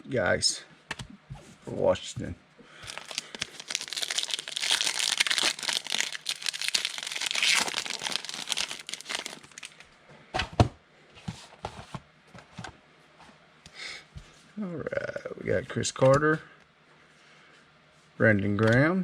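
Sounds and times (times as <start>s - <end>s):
wrapper crinkling and tearing: 2.8s - 9.8s.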